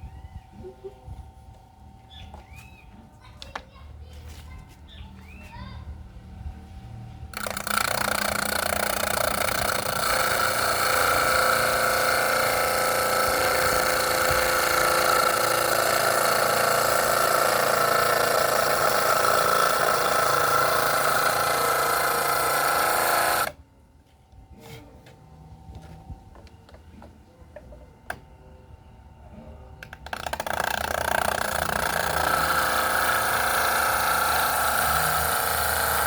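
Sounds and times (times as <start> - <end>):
electric power tool running: 7.3 - 23.6, 29.8 - 36.0.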